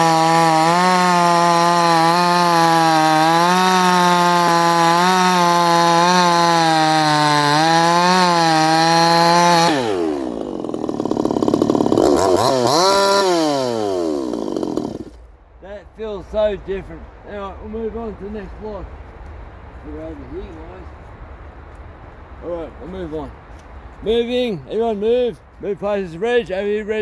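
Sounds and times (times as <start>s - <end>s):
chainsaw cutting wood: 0.0s - 15.3s.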